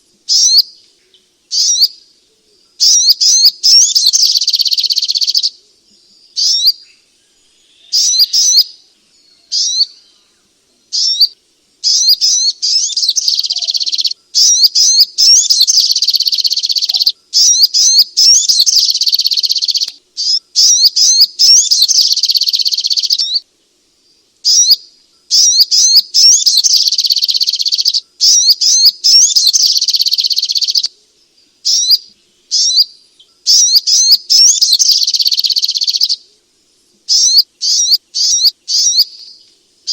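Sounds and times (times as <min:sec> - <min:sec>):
bird high rapid chirping: 0:00.3 - 0:00.8, 0:01.5 - 0:02.0, 0:02.8 - 0:05.6, 0:06.3 - 0:06.9, 0:07.8 - 0:08.8, 0:09.4 - 0:10.2, 0:10.9 - 0:23.4, 0:24.4 - 0:30.9, 0:31.6 - 0:36.2, 0:37.1 - 0:39.9.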